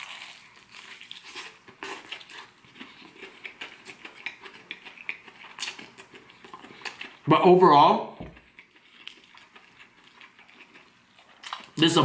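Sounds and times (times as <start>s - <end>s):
crunching fried chicken: 0.0s - 7.4s, 8.3s - 12.0s.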